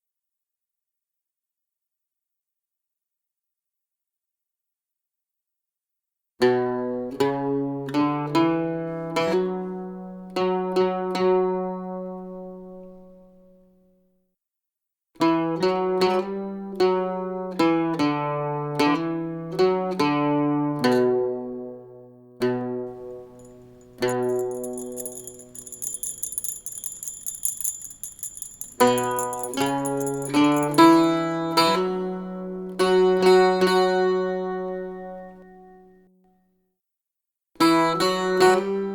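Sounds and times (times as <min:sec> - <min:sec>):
small bells jingling: 0:22.9 - 0:32.2.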